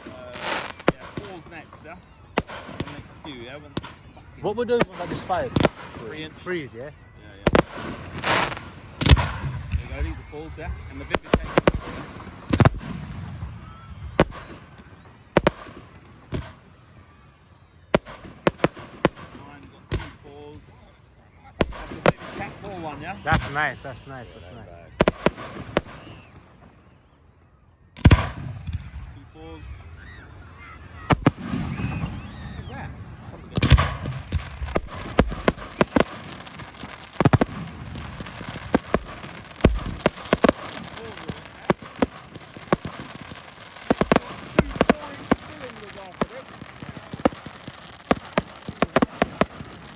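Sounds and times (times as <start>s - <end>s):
firework shells banging: 33.7s - 49.9s.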